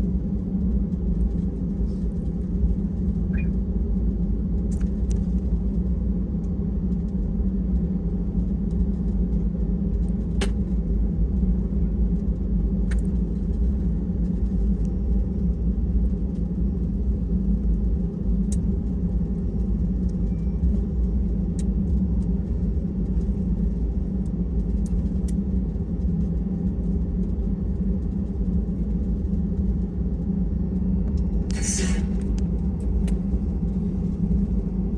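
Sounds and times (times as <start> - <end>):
cabin air-conditioning hum: 0.0 - 34.9.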